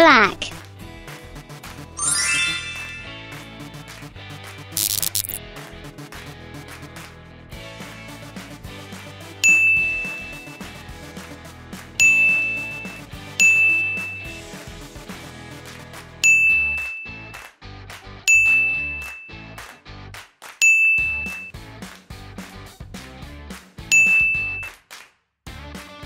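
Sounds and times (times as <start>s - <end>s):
light background music: 0.0s - 16.5s
high bell ding: 2.0s - 3.2s, 9.4s - 10.5s, 12.0s - 12.8s, 13.4s - 14.3s, 16.2s - 17.2s, 18.3s - 19.4s, 20.6s - 21.5s, 23.9s - 24.7s.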